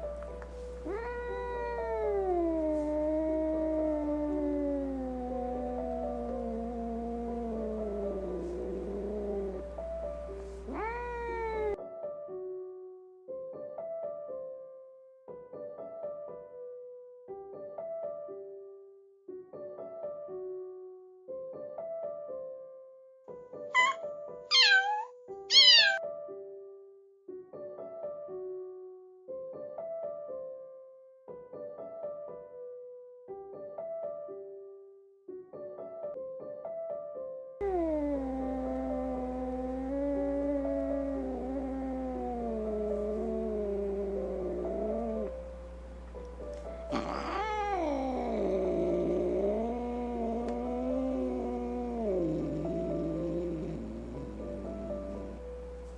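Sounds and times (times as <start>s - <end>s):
kitten meowing: 0.8s - 9.7s, 10.7s - 11.8s, 23.8s - 26.0s, 46.9s - 55.4s
piano music: 5.3s - 18.3s, 49.6s - 55.9s.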